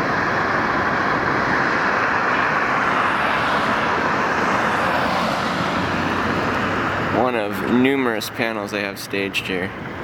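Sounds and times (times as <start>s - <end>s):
steady rushing noise: 0.0s - 10.0s.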